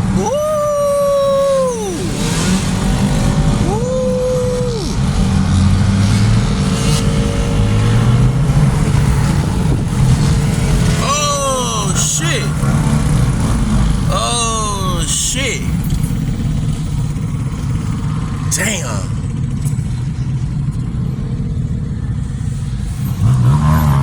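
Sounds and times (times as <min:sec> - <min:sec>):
dirt bike revving: 0:00.0 - 0:15.0
dirt bike engines rumbling: 0:00.0 - 0:24.0.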